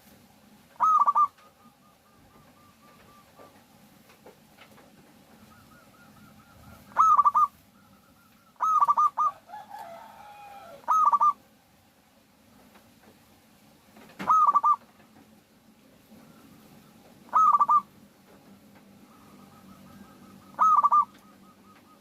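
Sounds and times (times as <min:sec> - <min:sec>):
dove cooing in clipped bursts: 0:00.7 - 0:03.7, 0:05.2 - 0:10.0, 0:10.7 - 0:11.4, 0:14.0 - 0:15.2, 0:16.2 - 0:17.9, 0:18.8 - 0:22.0
soft low wavering dove call: 0:00.8 - 0:03.6, 0:05.3 - 0:11.4, 0:14.3 - 0:14.8, 0:16.2 - 0:17.9, 0:18.9 - 0:22.0.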